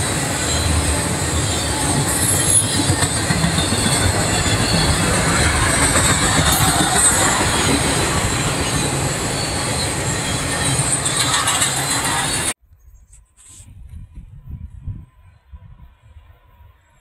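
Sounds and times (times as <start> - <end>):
high-pitched wheel squeals: 0.0 - 12.6
steel wheels rumbling on rails: 0.0 - 12.6.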